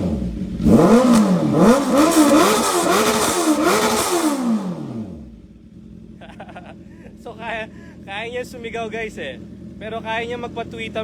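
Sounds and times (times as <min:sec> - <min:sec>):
motorcycle engine revving: 0:00.0 - 0:06.7.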